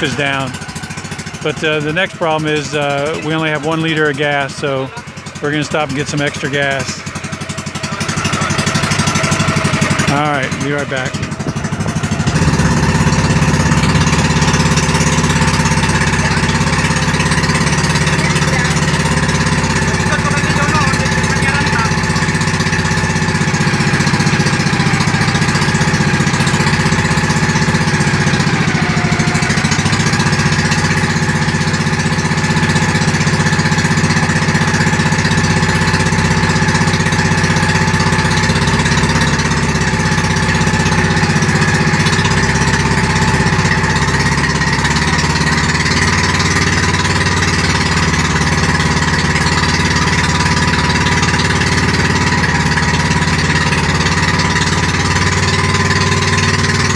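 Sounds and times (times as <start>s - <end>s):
loud boat engine running: 0.0s - 56.9s.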